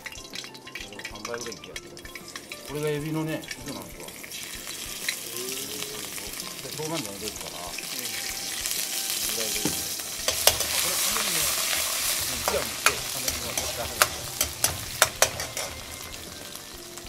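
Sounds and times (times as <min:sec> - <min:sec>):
oil sizzling in a wok: 0:00.0 - 0:17.0
metal ladle clinking on a wok: 0:09.6 - 0:10.9, 0:11.7 - 0:16.2.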